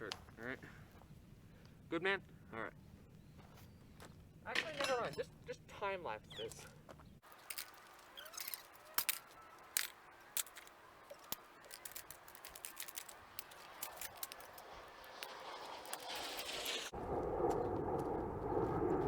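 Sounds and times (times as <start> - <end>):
clicks and clinks of broken pieces: 7.2 - 15.3.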